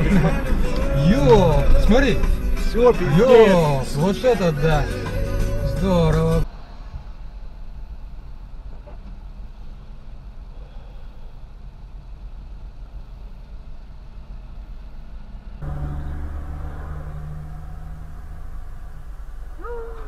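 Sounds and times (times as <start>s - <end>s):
car engine idling: 0.0s - 6.4s, 15.6s - 20.0s
car engine and road hum: 0.0s - 10.5s, 11.5s - 20.0s.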